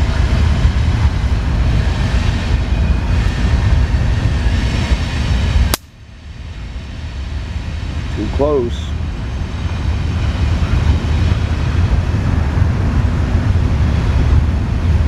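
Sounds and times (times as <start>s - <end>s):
torch click: 5.7s - 5.9s.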